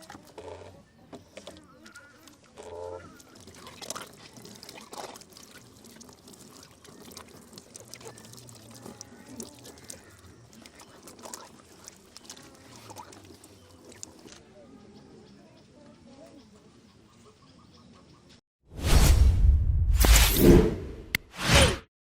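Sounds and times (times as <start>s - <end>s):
water pouring and splashing: 1.3s - 14.4s.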